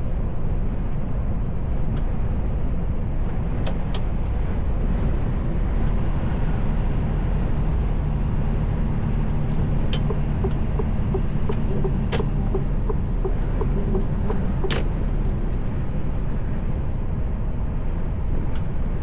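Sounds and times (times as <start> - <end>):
truck engine and road drone: 0.0 - 19.0
light regular ticking: 8.5 - 15.6
sharp clicks: 9.7 - 15.0.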